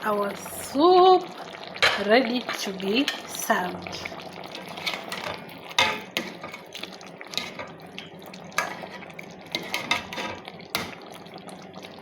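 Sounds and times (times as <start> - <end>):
spoon stirring in pot: 4.5 - 11.0.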